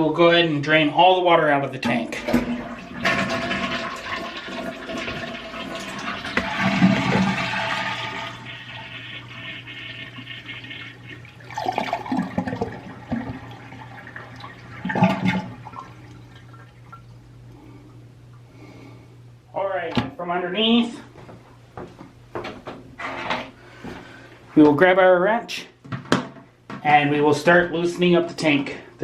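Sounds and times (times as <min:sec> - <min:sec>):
toilet tank draining: 0:01.8 - 0:18.4.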